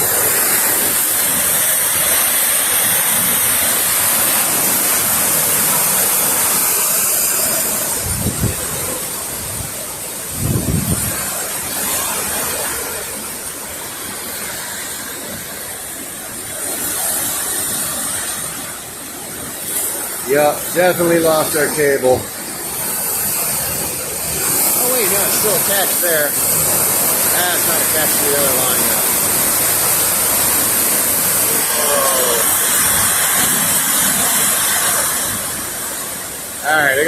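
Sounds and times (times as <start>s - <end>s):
wind and driven rain rushing: 0.0s - 37.0s.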